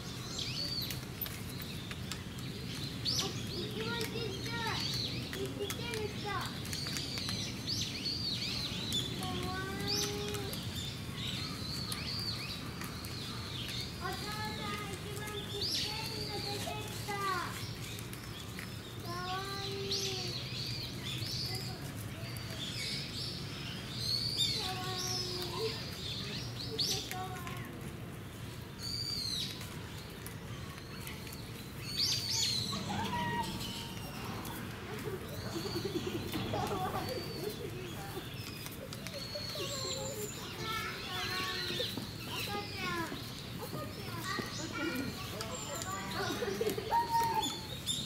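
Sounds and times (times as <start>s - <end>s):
low background murmur: 0.0s - 48.0s
small birds chirping: 0.0s - 48.0s
bird calls: 28.4s - 48.0s.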